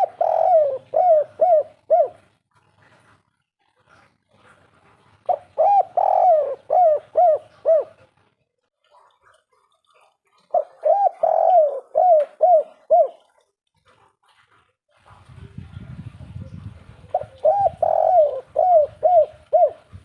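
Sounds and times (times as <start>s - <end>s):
dove cooing: 0.0s - 3.2s, 4.0s - 8.3s, 9.9s - 14.0s, 15.1s - 20.0s.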